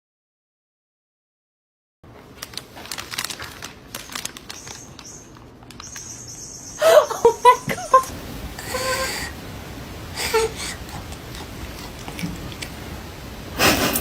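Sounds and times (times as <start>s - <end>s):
faint steady high whine: 2.6s - 14.0s
squeaky animal calls: 4.5s - 8.1s.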